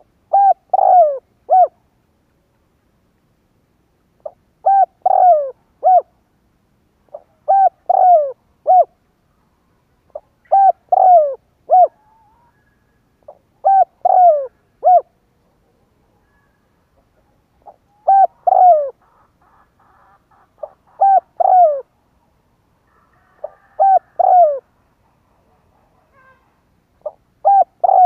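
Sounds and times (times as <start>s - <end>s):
dove cooing: 0.0s - 1.8s, 4.2s - 6.2s, 7.1s - 9.0s, 10.1s - 15.2s, 16.1s - 22.0s, 22.9s - 28.0s.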